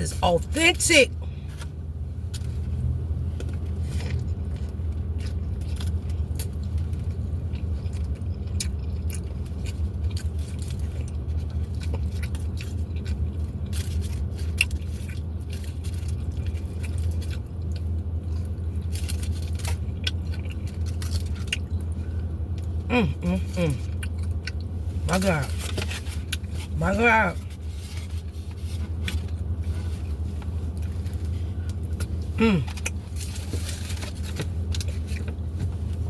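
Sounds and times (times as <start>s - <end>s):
low engine-like hum: 0.0s - 36.0s
chewing food with wet clicks: 3.4s - 22.8s, 23.8s - 24.7s.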